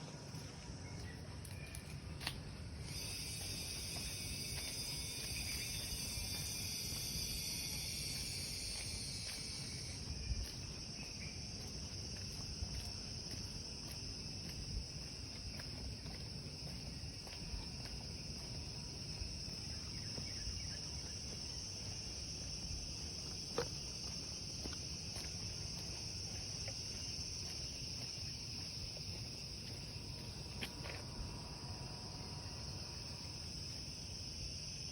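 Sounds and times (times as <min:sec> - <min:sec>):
high-pitched insect shrill: 0:02.8 - 0:10.2.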